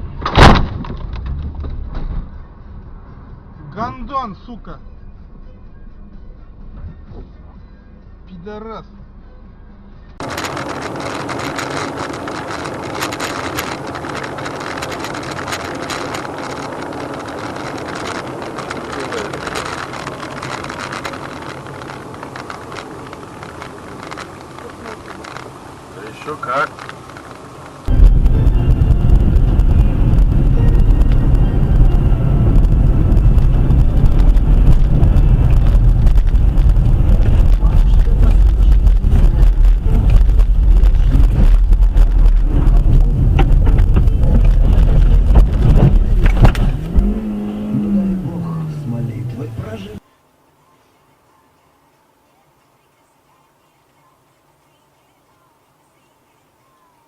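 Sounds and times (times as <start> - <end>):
vehicle engine and road rumble: 0.0 - 57.0
sharp clicks and rattles: 10.2 - 48.3.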